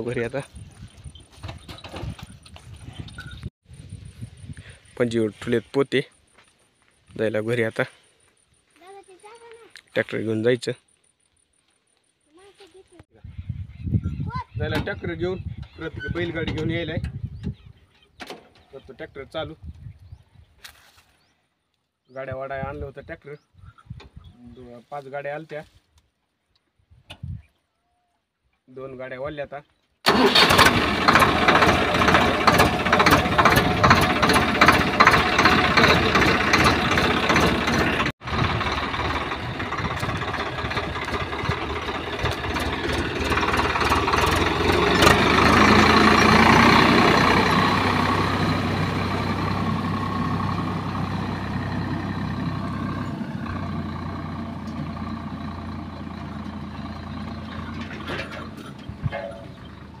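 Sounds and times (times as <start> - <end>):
tractor engine clattering: 30.1 - 60.0.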